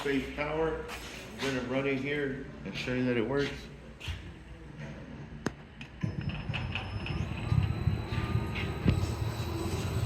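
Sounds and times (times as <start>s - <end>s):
rising motor whine: 6.9s - 10.0s.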